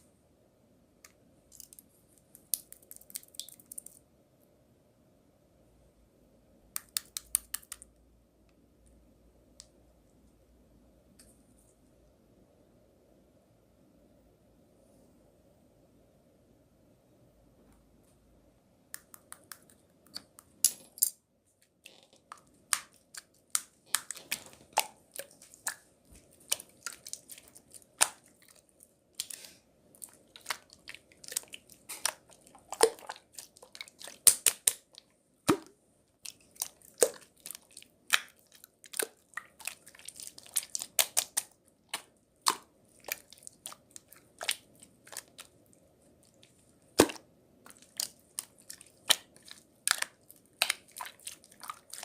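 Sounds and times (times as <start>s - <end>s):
faint steady hum: 0.0s - 52.0s
crisp crunching and snapping: 36.2s - 45.6s.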